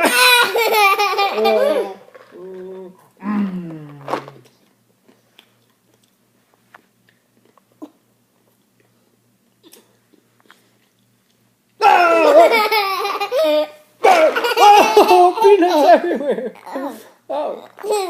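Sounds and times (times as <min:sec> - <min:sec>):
baby laughing: 0:00.0 - 0:02.0, 0:12.1 - 0:17.1.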